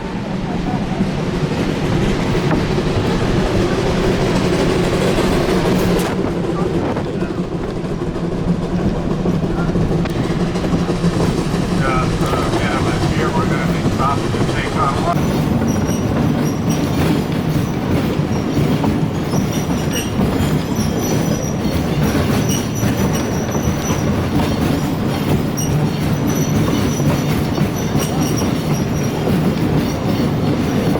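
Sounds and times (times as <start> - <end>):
train rumble and wheel clatter: 0.0 - 30.9
high wheel squeal: 10.1 - 30.9.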